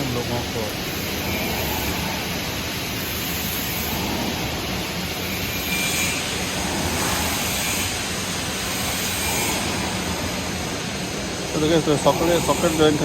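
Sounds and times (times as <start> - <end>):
electric arc welding hiss: 0.0 - 13.0.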